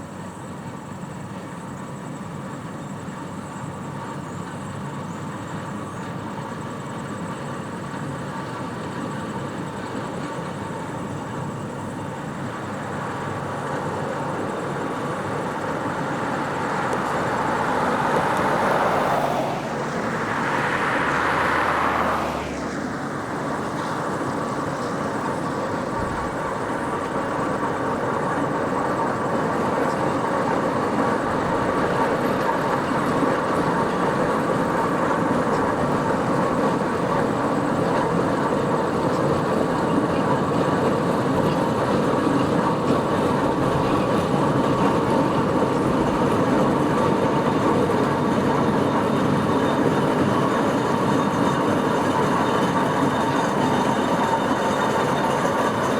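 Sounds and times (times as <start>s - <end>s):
engine whine: 0.2s - 55.9s
steam engine clattering and rumbling: 23.0s - 55.9s.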